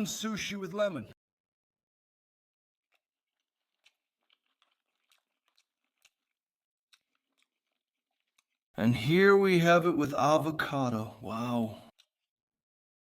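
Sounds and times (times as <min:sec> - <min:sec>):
person chewing: 0:02.9 - 0:08.7, 0:11.3 - 0:12.3.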